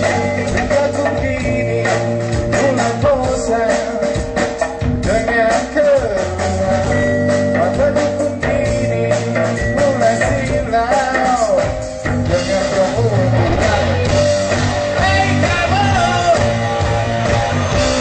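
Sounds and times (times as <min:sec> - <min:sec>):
drums and percussion: 0:00.0 - 0:18.0
person singing: 0:00.0 - 0:18.0.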